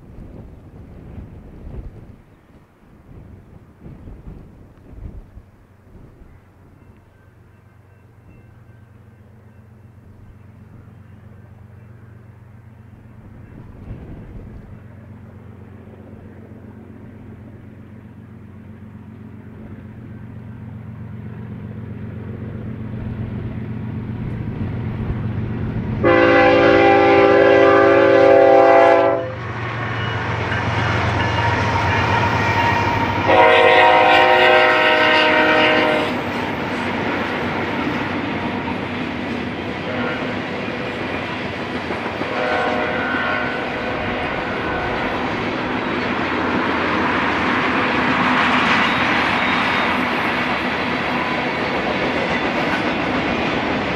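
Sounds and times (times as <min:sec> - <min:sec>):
diesel locomotive engine rumble: 0:00.0 - 0:53.9
locomotive air horn blasts: 0:26.0 - 0:29.6, 0:31.3 - 0:36.2, 0:39.9 - 0:40.4, 0:42.3 - 0:45.0.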